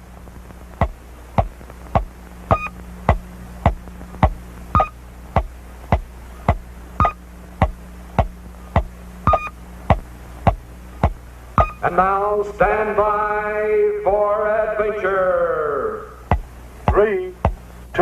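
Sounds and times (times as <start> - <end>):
steady low hum: 0.0 - 18.0
sharp cartoon ticks: 0.8 - 11.9
short electronic beep: 2.5 - 2.7, 4.8 - 5.0, 9.3 - 9.5, 11.6 - 11.8.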